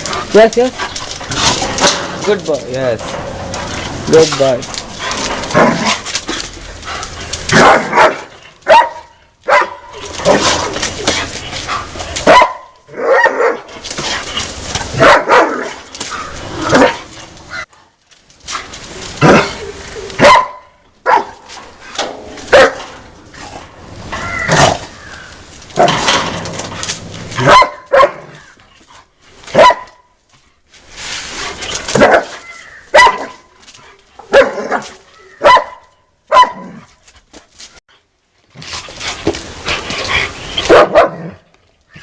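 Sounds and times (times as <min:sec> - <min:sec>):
dog barking: 0:07.5 - 0:10.4, 0:12.2 - 0:13.7, 0:15.0 - 0:15.7, 0:20.2 - 0:21.4, 0:22.5 - 0:22.9, 0:27.4 - 0:28.3, 0:29.5 - 0:30.1, 0:32.0 - 0:32.3, 0:32.9 - 0:33.5, 0:34.3 - 0:34.8, 0:35.4 - 0:36.8, 0:40.7 - 0:41.4.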